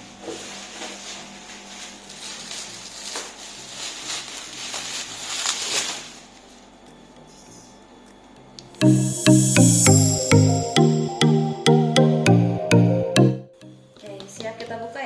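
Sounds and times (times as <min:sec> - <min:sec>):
packaging rustling and scraping: 0:00.3 - 0:06.5.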